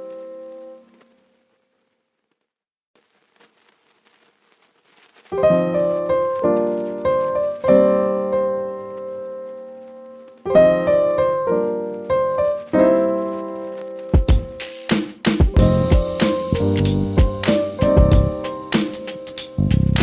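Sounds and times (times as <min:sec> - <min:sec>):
piano music: 0:00.0 - 0:01.0, 0:05.4 - 0:20.0.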